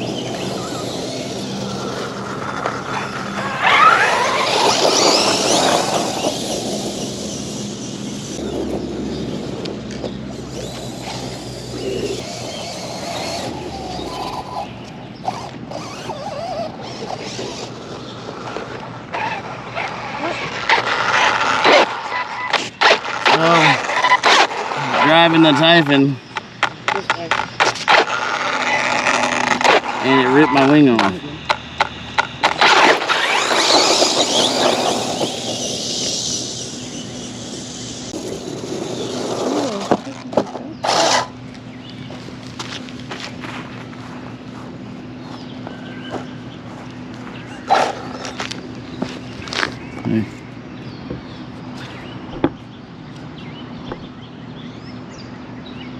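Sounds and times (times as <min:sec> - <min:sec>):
rattling drivetrain: 0:00.0 - 0:41.4
electric motor whine: 0:00.0 - 0:50.1
tyres on gravel: 0:00.0 - 0:54.2.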